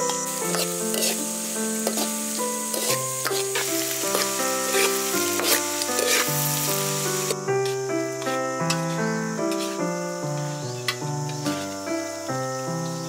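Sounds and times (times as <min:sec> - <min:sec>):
metal ladle scraping a pan: 0:00.0 - 0:07.4, 0:08.2 - 0:09.9
background music with held notes: 0:00.0 - 0:13.0
food sizzling in a wok: 0:00.0 - 0:13.0.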